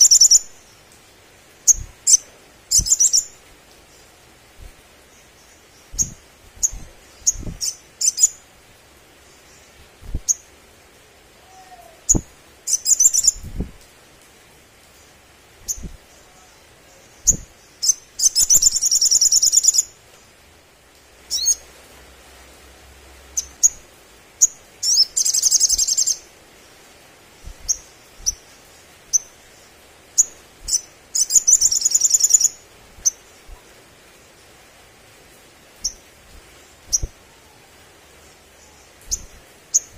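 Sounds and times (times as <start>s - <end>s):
bird high chirps: 0.0s - 0.5s, 1.7s - 3.4s, 5.8s - 8.4s, 11.5s - 13.5s, 15.7s - 19.9s, 21.3s - 21.6s, 24.8s - 26.2s, 30.2s - 33.6s, 36.8s - 37.6s, 38.6s - 39.9s
bird buzzy trills: 4.6s - 8.4s, 30.2s - 33.6s, 35.8s - 37.5s, 38.6s - 39.9s.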